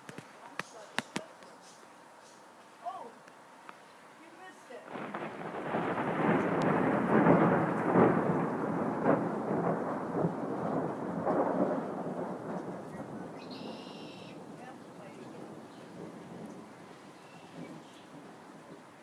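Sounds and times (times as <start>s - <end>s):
thunder rumbling: 4.9s - 19.0s.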